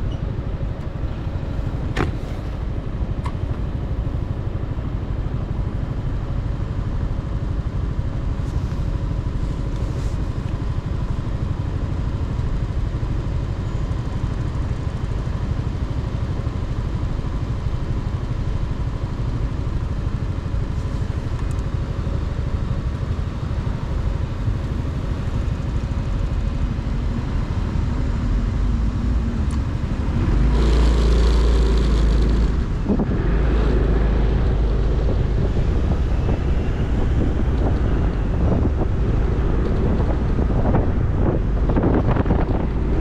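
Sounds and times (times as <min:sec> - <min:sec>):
motorcycle engine running: 0:00.0 - 0:43.0
wind buffeting the microphone: 0:32.1 - 0:43.0.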